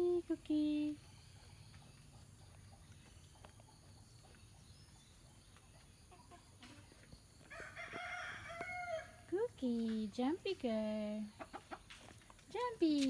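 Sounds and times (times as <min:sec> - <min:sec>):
rooster crowing: 0:07.5 - 0:09.2.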